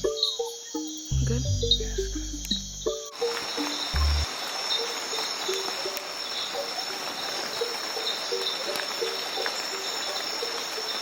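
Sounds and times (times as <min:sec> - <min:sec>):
insect chorus drone: 0:00.0 - 0:11.0
pulsing chirps: 0:00.0 - 0:11.0
short low notes: 0:01.1 - 0:02.9, 0:04.0 - 0:04.3.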